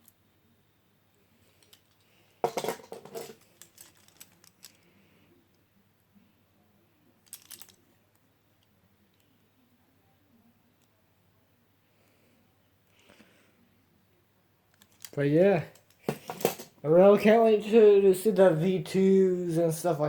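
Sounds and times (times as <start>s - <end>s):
small hard objects clicking and rattling: 1.6s - 5.0s, 7.2s - 7.9s, 14.8s - 16.8s.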